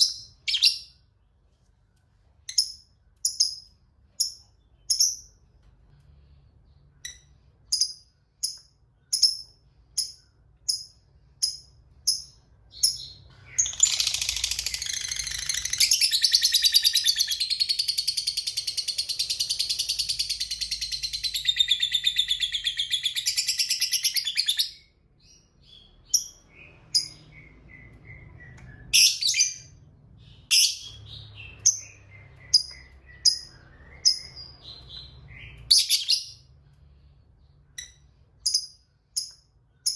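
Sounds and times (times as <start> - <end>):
bird sharp chirps: 0.0 - 1.2, 6.3 - 39.9
bird rapid chattering trill: 13.6 - 21.1.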